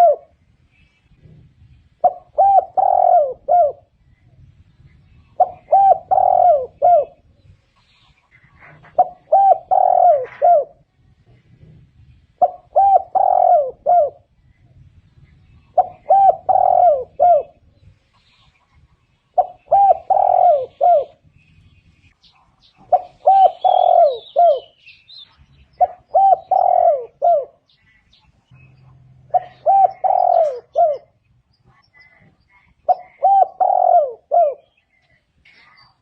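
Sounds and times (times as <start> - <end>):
dove cooing: 0.0 - 0.4, 1.1 - 4.0, 5.2 - 7.4, 8.4 - 10.9, 12.4 - 14.4, 15.6 - 17.9, 19.3 - 21.2, 22.8 - 24.8, 25.7 - 27.9, 29.2 - 32.2, 32.8 - 35.1.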